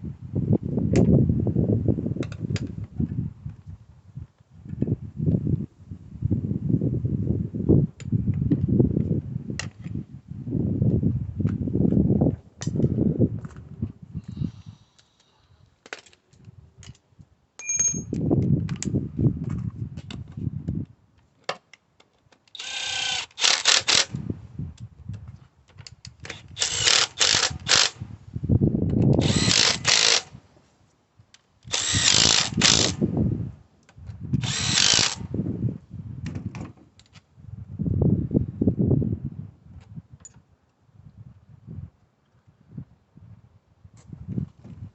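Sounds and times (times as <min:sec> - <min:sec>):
power drill running: 0:22.6 - 0:24.1, 0:26.3 - 0:28.0, 0:29.2 - 0:30.3, 0:31.7 - 0:33.0, 0:34.4 - 0:35.2.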